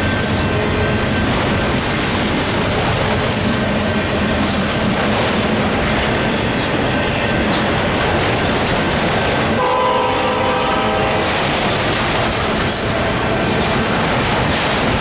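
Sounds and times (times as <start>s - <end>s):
freight train rumbling on rails: 0.0s - 15.0s
locomotive air horn chord: 9.6s - 11.4s.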